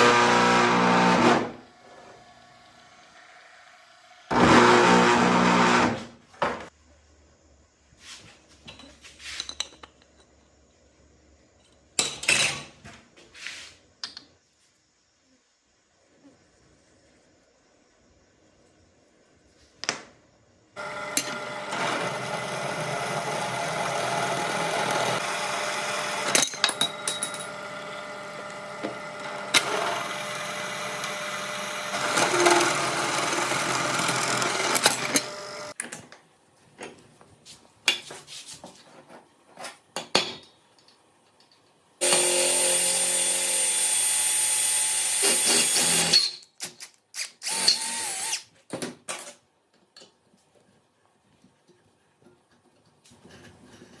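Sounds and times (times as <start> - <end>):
power tool running: 0.0 - 6.0, 20.8 - 35.8, 42.0 - 46.2, 47.2 - 48.4.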